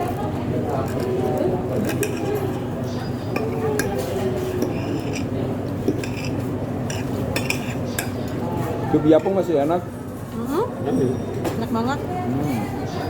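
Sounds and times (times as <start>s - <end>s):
cutlery clinking on plates: 0.7s - 8.4s.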